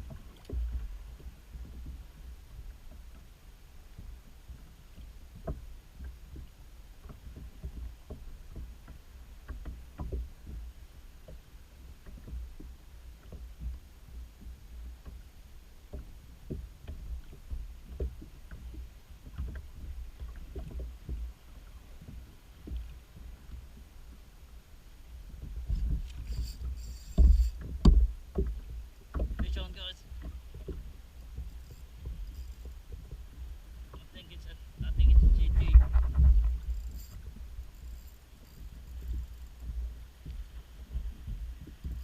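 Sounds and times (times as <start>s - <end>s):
water lapping against kayak hull: 0.0s - 42.0s
small irregular knocks: 4.9s - 11.4s, 15.9s - 21.3s, 25.2s - 34.2s, 34.8s - 42.0s
steady low rumble: 31.5s - 38.0s.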